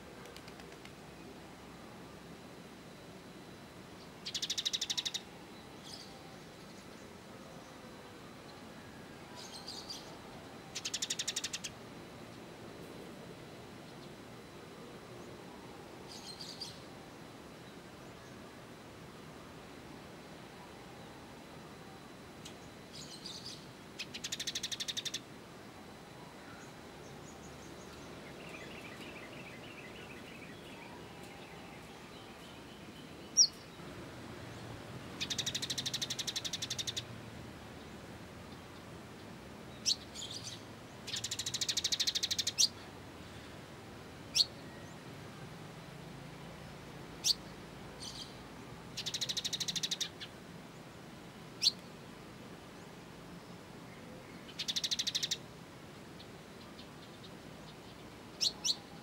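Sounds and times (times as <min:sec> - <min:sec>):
faint bird trill: 0:02.8 - 0:07.6, 0:08.8 - 0:11.8, 0:20.5 - 0:33.8, 0:35.2 - 0:37.1, 0:39.8 - 0:43.5, 0:44.3 - 0:45.0, 0:47.2 - 0:50.3, 0:51.6 - 0:51.9, 0:54.0 - 0:55.4, 0:56.6 - 0:59.0
songbirds rapid high chattering: 0:04.2 - 0:05.3, 0:35.2 - 0:37.1, 0:49.0 - 0:50.3.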